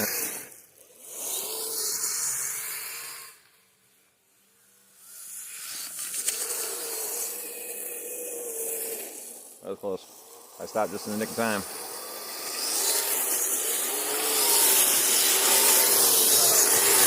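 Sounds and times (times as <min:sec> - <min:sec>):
toy vehicle motor whine: 0:00.0 - 0:17.0
tracks churning snow: 0:08.4 - 0:17.0.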